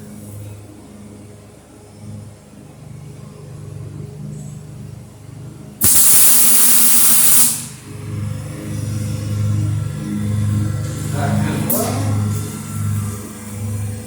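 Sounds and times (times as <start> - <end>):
welding arc hissing: 5.8 - 7.8.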